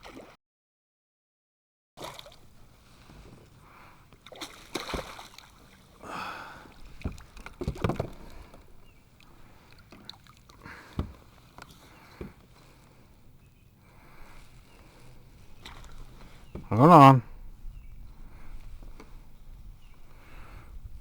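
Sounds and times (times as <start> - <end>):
water sloshing and splashing: 0.0 - 0.4, 2.0 - 3.4, 4.2 - 6.0, 6.7 - 12.8, 14.3 - 16.5.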